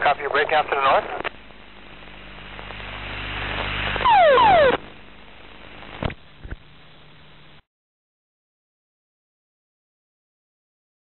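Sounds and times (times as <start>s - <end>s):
loud burst with falling tones: 4.0s - 4.8s.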